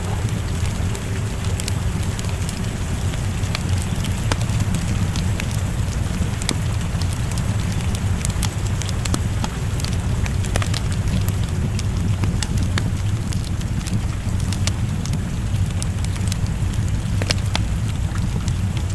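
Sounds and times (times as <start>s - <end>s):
low rumble: 0.0s - 18.9s
rain hissing: 0.0s - 18.9s
wood fire crackling and popping: 0.0s - 18.9s.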